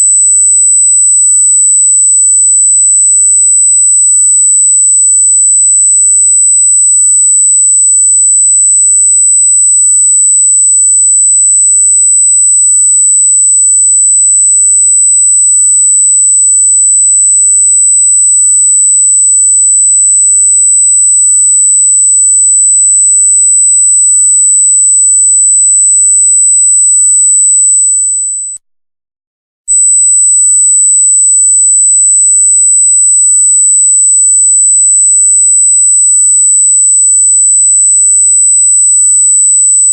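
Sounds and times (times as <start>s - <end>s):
high electronic tone: 27.1s - 28.6s.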